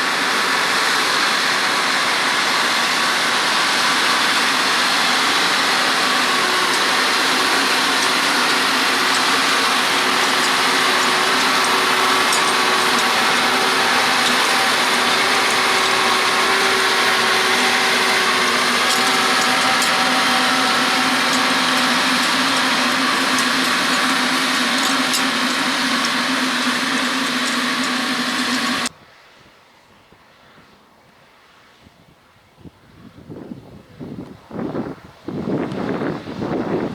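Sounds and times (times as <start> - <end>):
tractor diesel engine under load: 0.0 - 28.9.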